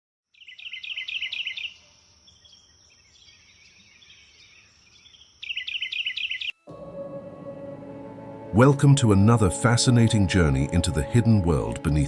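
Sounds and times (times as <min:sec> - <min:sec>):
faint high whine: 0:06.7 - 0:12.0.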